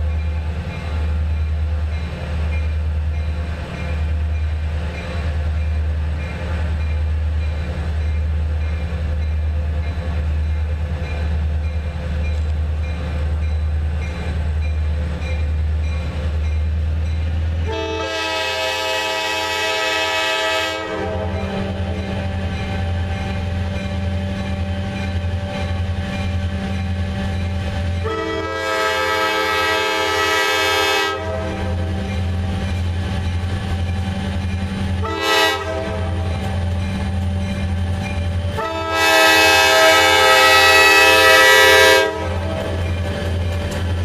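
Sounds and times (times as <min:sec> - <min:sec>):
locomotive air horn blasts: 0:17.6 - 0:22.6, 0:28.0 - 0:32.0, 0:35.0 - 0:36.4, 0:38.6 - 0:42.8.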